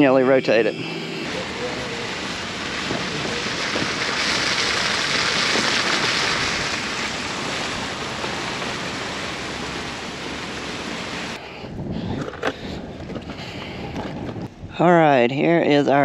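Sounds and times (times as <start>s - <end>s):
water spraying from jets: 1.2s - 11.4s.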